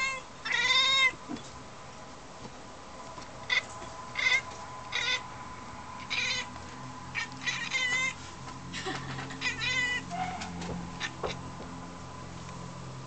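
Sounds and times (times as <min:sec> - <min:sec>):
cat chirping and meowing: 0:00.0 - 0:01.2, 0:03.5 - 0:05.3, 0:06.0 - 0:08.2, 0:09.4 - 0:11.3.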